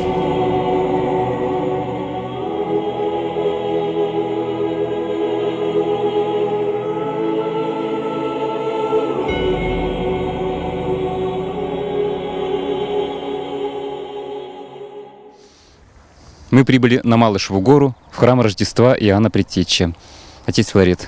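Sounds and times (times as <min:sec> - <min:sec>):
choir singing slow chords: 0:00.0 - 0:15.9.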